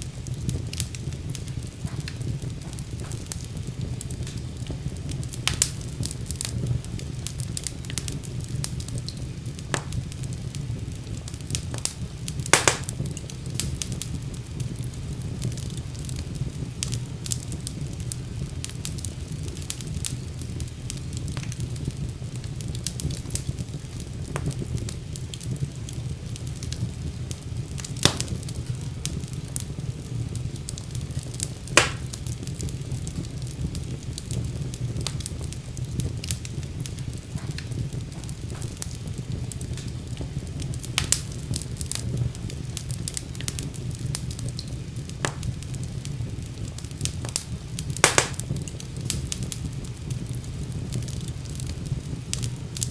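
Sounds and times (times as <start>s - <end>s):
fire crackling in fireplace: 0.0s - 52.9s
sharp wood pops: 12.6s - 12.9s, 28.0s - 28.3s, 31.8s - 32.1s, 48.0s - 48.4s.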